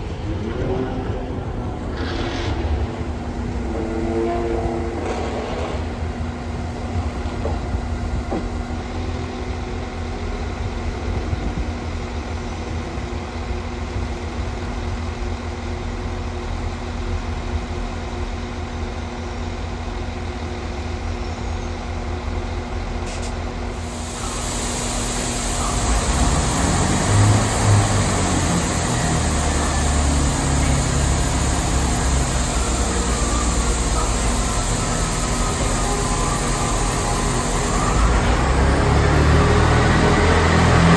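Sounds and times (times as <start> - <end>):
diesel train engine idling: 5.8 - 40.9
loud steady hiss: 23.1 - 40.9.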